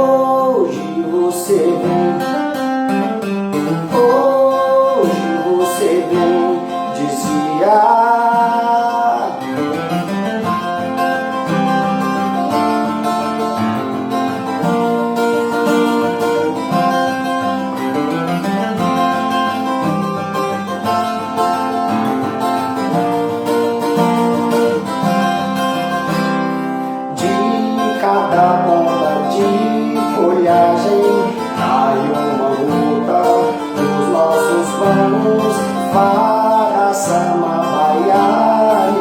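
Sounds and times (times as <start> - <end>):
acoustic guitar playing: 0.0 - 39.0.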